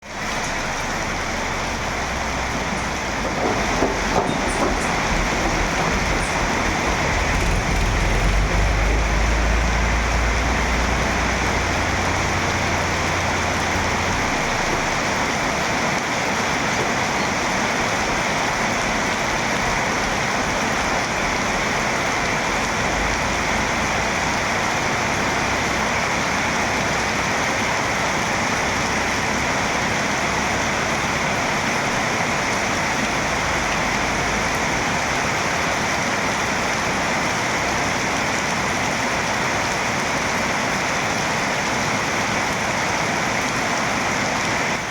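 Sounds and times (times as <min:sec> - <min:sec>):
heavy rain hissing: 0:00.0 - 0:44.9
deep low rumble: 0:04.0 - 0:15.0.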